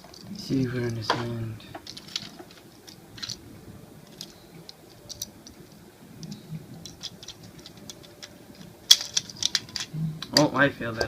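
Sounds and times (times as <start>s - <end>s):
plastic toy clicking and tapping: 4.1s - 11.0s.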